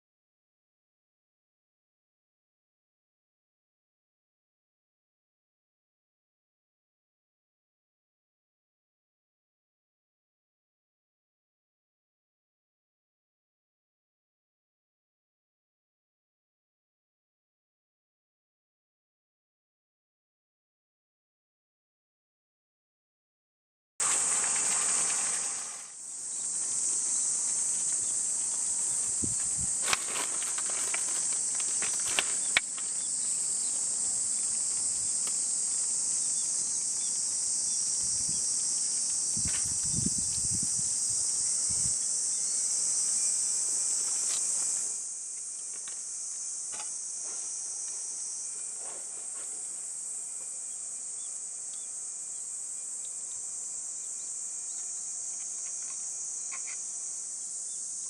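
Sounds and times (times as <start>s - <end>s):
insects chirring: 24.0s - 58.0s.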